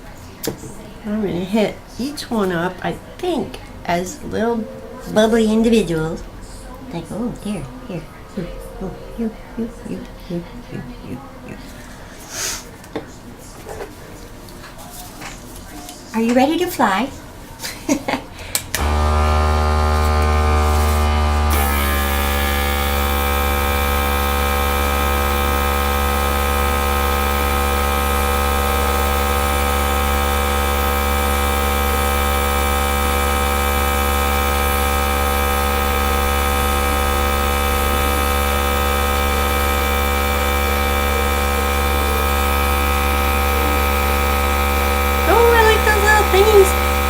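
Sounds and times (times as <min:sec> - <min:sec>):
electric air gun motor whine: 0:18.8 - 0:47.0.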